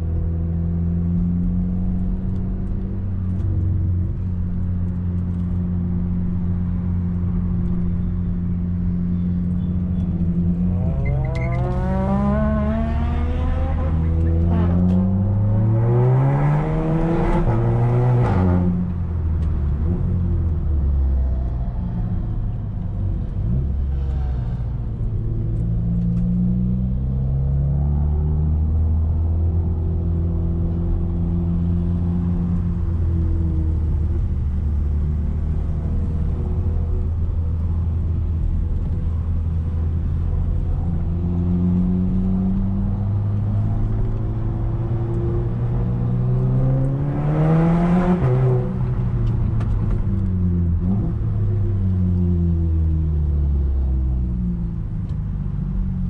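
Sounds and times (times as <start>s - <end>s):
car engine revving: 10.0s - 21.1s, 33.7s - 52.7s.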